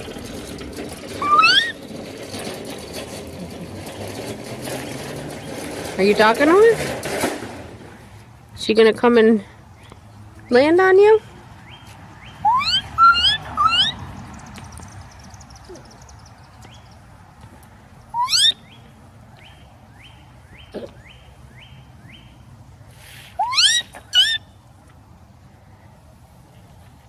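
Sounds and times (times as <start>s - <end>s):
distant bird song notes: 11.6s - 17.2s, 18.0s - 22.6s
person whistling rising slurs: 12.5s - 13.9s, 23.4s - 23.8s.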